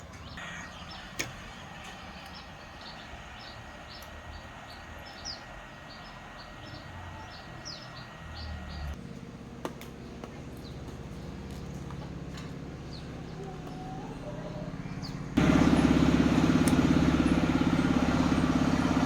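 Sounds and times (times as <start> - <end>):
small bird chirping: 0.1 - 9.0.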